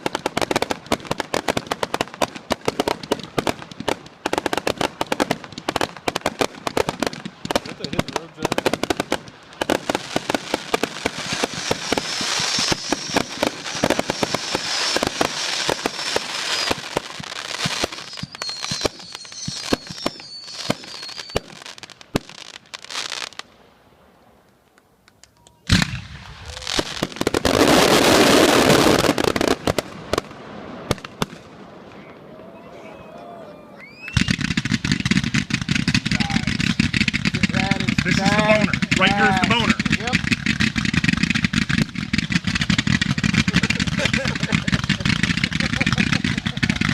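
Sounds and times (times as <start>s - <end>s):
fireworks crackling: 0.0s - 23.8s, 25.7s - 46.9s
dense hissing crackle: 0.0s - 24.8s, 25.7s - 31.5s, 33.9s - 46.9s
fireworks bang: 4.6s - 22.4s, 33.8s - 46.9s
faint high whistling: 18.0s - 21.4s, 32.0s - 34.4s.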